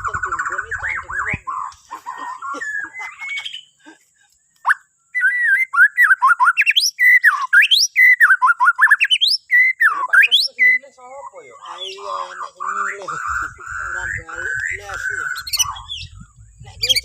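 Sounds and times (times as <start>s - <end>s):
bird singing varied whistles: 4.6s - 10.9s, 14.1s - 17.0s.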